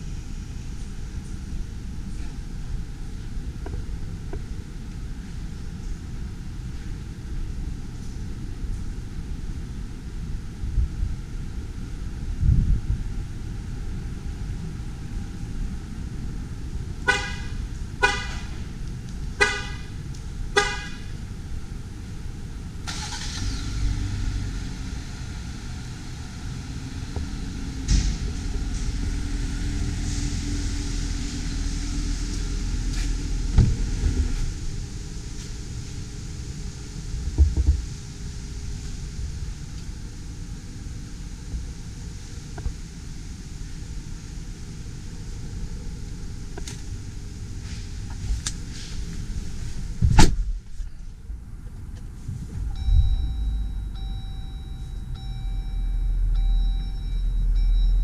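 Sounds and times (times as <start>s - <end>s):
steady low hum: 0.0s - 58.0s
car horn chirping: 17.1s - 18.5s, 19.4s - 19.9s, 20.6s - 21.1s.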